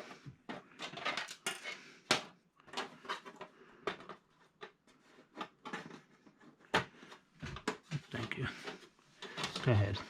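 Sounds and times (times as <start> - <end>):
clicks and knocks of parts handled: 0.5 - 7.8.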